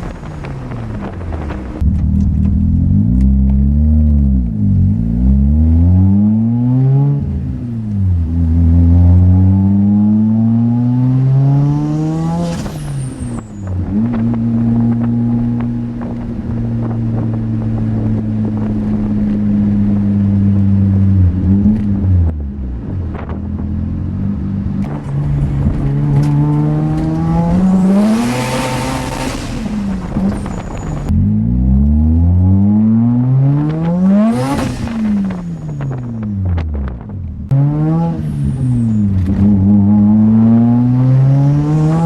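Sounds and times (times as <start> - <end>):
rotary engine revving: 24.3 - 36.6.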